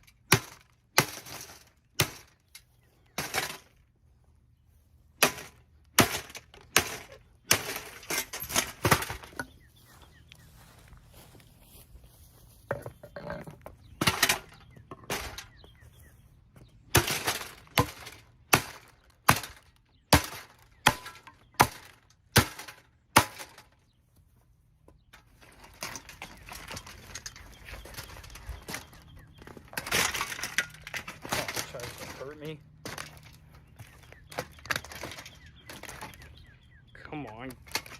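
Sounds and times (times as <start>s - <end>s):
rough crunching noise: 25.1s - 37.9s.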